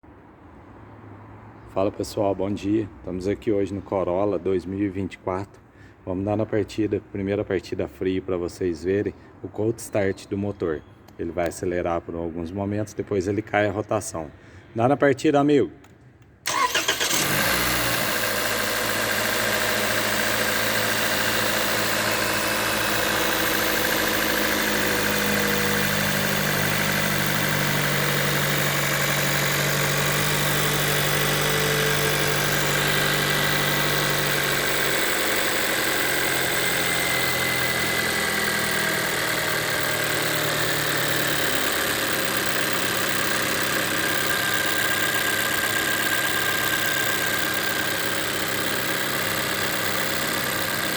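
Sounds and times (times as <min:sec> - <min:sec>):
car engine fast idling: 0:16.5 - 0:50.9.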